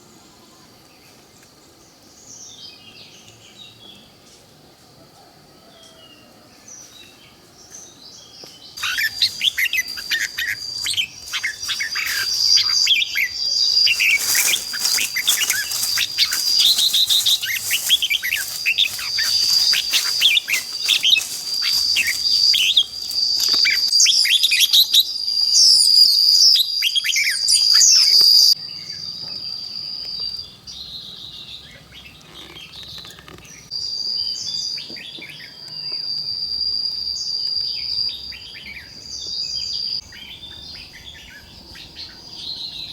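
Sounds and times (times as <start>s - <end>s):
flock of birds chirping: 0.2s - 23.9s
high insect-like drone: 8.8s - 23.9s.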